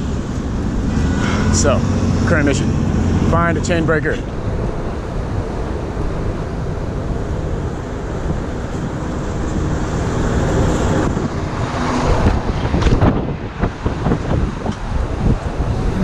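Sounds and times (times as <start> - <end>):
traffic noise: 0.0 - 16.0
wind buffeting microphone: 0.0 - 16.0.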